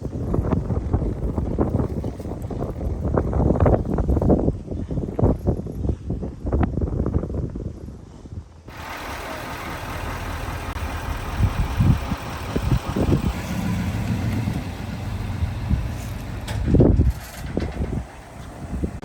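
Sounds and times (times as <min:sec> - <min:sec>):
vehicle engine running: 0:08.7 - 0:19.0.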